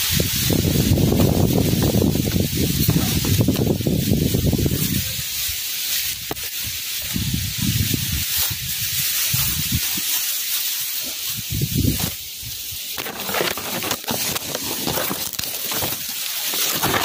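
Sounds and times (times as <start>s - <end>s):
wind buffeting microphone: 0.0s - 5.5s, 6.1s - 10.0s, 11.2s - 12.9s
wind hissing through foliage: 0.0s - 17.0s.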